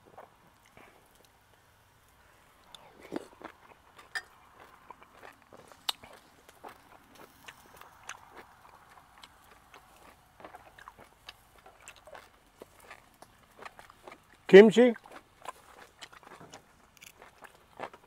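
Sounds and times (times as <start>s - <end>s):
person chewing food: 0.0s - 18.0s.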